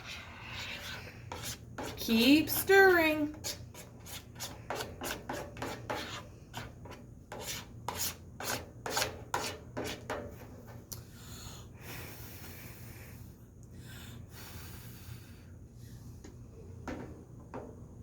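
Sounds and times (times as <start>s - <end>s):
spoon scraping a bowl: 0.0s - 10.3s.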